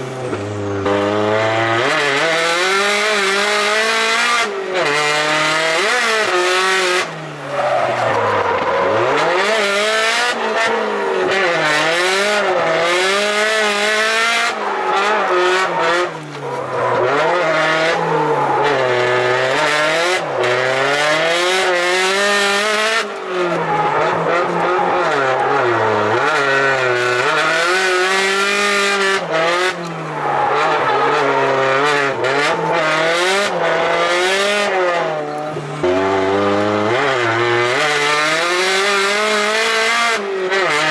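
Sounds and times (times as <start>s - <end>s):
turbocharged car engine revving: 0.0s - 40.9s.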